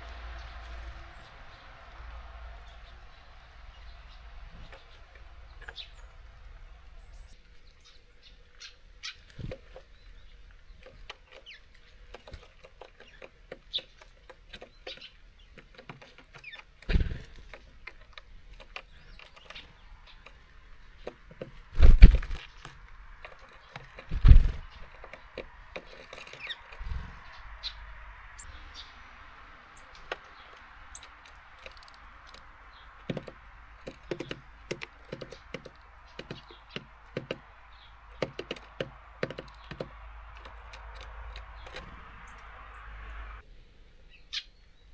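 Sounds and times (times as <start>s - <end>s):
rain hiss: 0.0s - 7.3s, 26.6s - 38.2s, 38.9s - 43.4s
bird wings flapping: 0.0s - 7.4s, 16.8s - 18.0s, 18.6s - 43.4s
beaks tapping on feeder: 0.0s - 43.4s.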